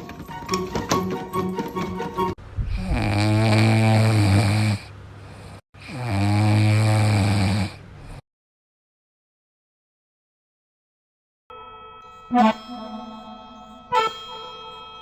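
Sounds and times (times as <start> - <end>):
music: 0.0 - 2.4, 11.5 - 15.0
low snores: 2.7 - 8.2.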